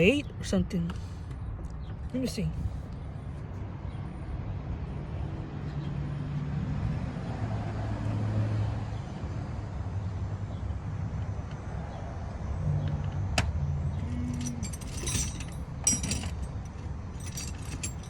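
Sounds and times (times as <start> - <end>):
vehicle engine droning: 5.4 - 18.0.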